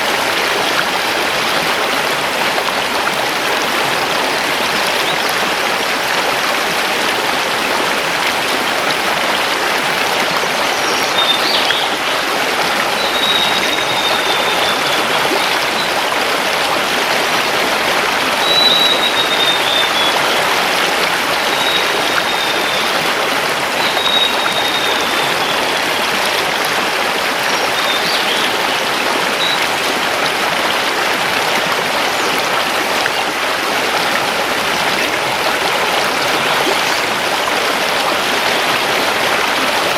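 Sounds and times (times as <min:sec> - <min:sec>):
river water rushing over stones: 0:00.0 - 0:39.9
bird whistling and chirping: 0:13.0 - 0:15.0, 0:18.4 - 0:20.4, 0:23.8 - 0:25.8.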